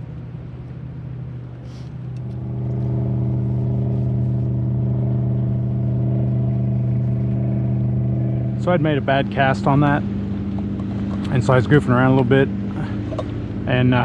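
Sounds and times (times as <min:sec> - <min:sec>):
motorboat engine running: 0:00.0 - 0:14.0.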